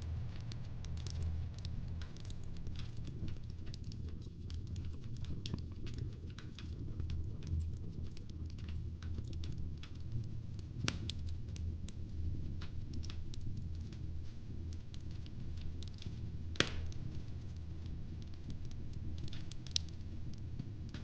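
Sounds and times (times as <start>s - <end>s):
low steady rumble: 0.0s - 5.0s
wood fire crackling: 0.0s - 21.0s
fire pops and snaps: 0.2s - 21.0s.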